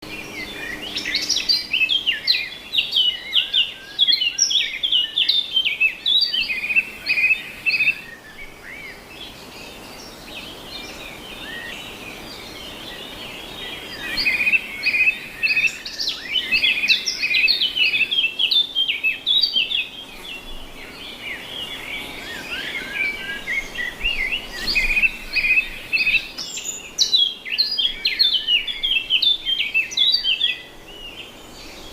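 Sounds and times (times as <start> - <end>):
birds chirping and chattering: 0.0 - 31.9.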